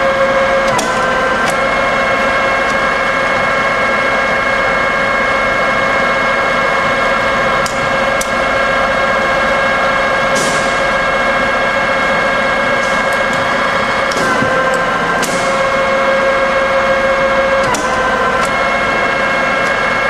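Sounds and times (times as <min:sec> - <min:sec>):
milling machine motor whine: 0:00.0 - 0:20.0.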